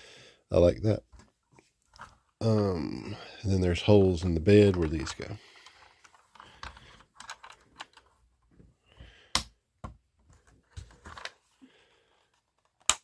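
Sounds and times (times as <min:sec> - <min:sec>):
plastic toy parts clicking: 0:06.0 - 0:08.1.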